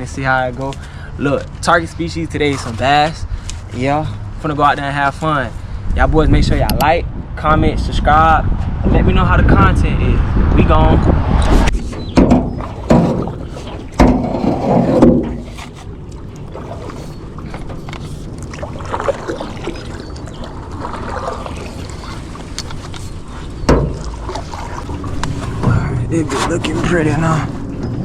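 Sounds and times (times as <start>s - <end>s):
steady low boat noise: 0.0s - 28.0s
knocks and thumps on boat: 11.8s - 18.0s, 23.4s - 28.0s.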